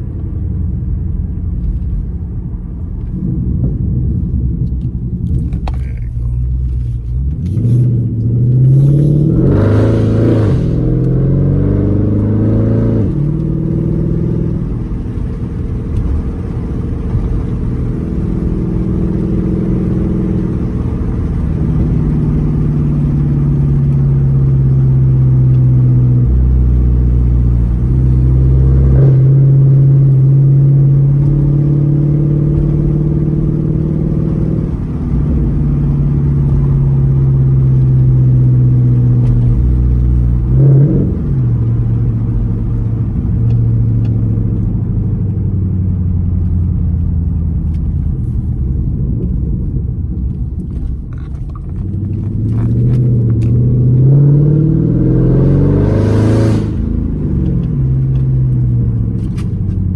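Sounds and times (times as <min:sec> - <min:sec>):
car engine revving and droning: 0:00.0 - 0:59.9
faint exhaust cracks: 0:04.6 - 0:08.0.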